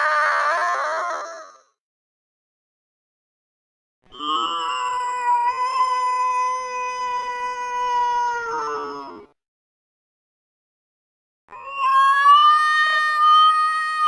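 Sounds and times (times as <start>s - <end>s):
cat yowling slowed down: 4.4s - 9.3s, 11.6s - 14.0s.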